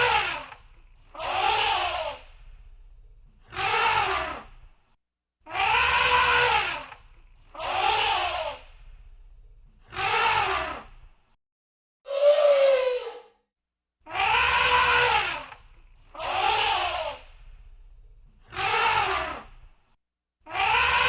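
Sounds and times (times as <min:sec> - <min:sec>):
elephant trumpeting: 0:05.5 - 0:06.9, 0:14.1 - 0:15.5.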